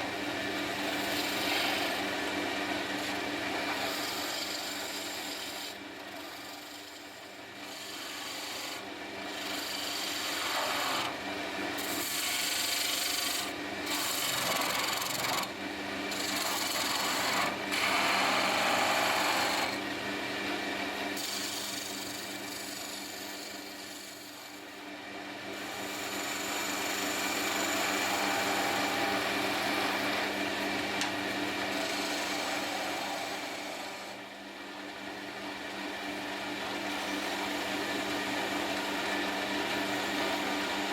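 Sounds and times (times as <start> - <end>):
wood lathe motor hum: 0.0 - 20.0, 21.2 - 24.6, 25.6 - 40.9
tool rasping on spinning wood: 0.8 - 2.1, 3.0 - 11.2, 11.8 - 15.5, 16.1 - 19.8, 21.2 - 24.6, 25.6 - 30.3, 31.5 - 34.2.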